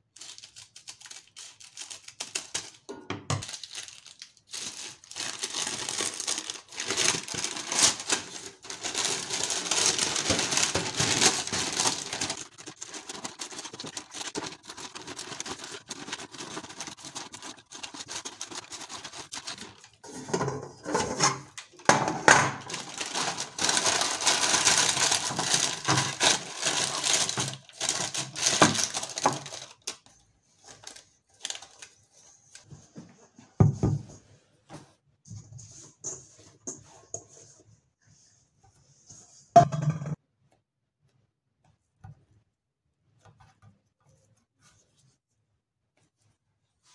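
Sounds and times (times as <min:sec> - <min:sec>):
baking paper crinkling: 0:00.0 - 0:32.7.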